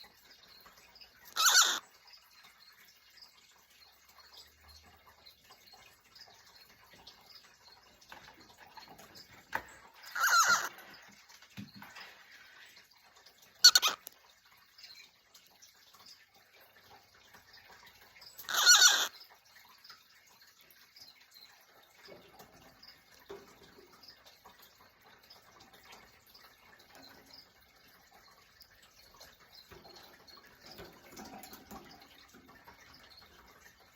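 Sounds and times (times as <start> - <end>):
faint ticks and rustles: 0.0 - 33.9
cockatiel calling: 1.3 - 1.8, 10.0 - 10.8, 13.6 - 14.1, 18.4 - 19.1.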